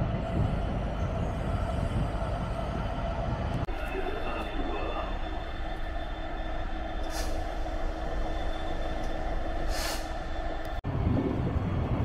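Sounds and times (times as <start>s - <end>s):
faint steady tones: 0.0s - 10.8s
train rumbling: 0.0s - 12.0s.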